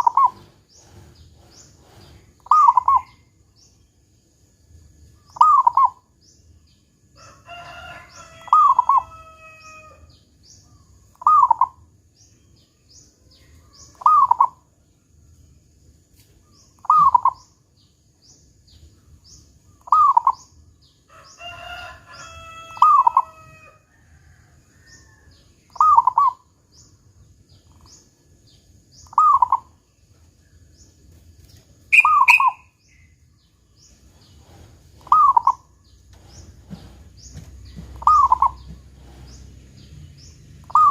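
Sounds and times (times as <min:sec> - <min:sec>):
dove cooing: 0:00.0 - 0:01.2, 0:01.8 - 0:03.2, 0:14.0 - 0:14.6, 0:16.8 - 0:17.5, 0:25.7 - 0:26.4, 0:29.1 - 0:29.7, 0:31.9 - 0:32.6, 0:35.0 - 0:35.7, 0:37.8 - 0:39.3, 0:40.6 - 0:40.9
bird crowing call: 0:07.2 - 0:10.6, 0:21.0 - 0:26.4, 0:31.9 - 0:33.0, 0:35.0 - 0:39.4, 0:40.6 - 0:40.9
faint high chirps: 0:31.4 - 0:33.3.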